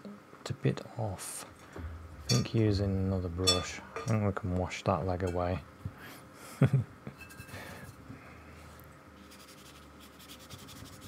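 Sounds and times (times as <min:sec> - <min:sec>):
paintbrush scrubbing: 0:09.2 - 0:11.0.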